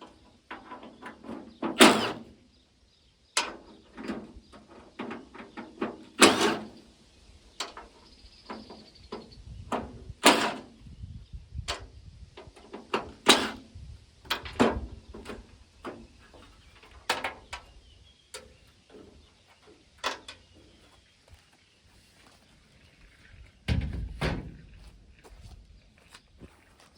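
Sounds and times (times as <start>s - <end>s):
hand tools clanking on metal: 0.5s - 2.2s, 3.4s - 6.8s, 9.7s - 10.7s, 12.5s - 13.6s.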